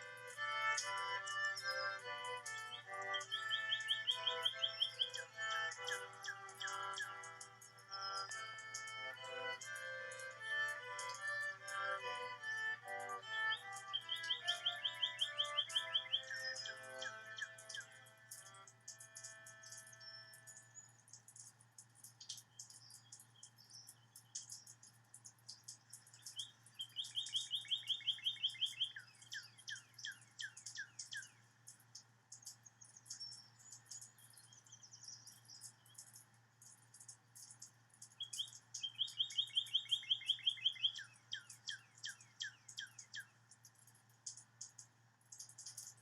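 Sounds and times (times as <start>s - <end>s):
bird song with fast trill: 0.0s - 46.0s
thin high chirps: 0.8s - 21.6s, 25.7s - 31.3s, 32.4s - 43.3s.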